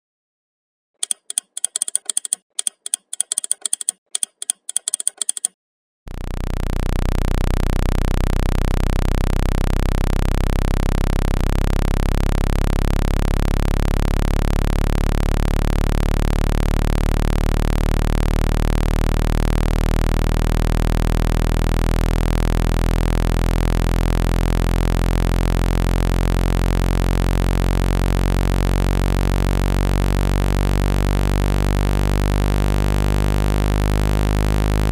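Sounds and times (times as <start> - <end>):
quick irregular clicking: 1.0 - 5.6
low buzzing tone: 6.1 - 34.9.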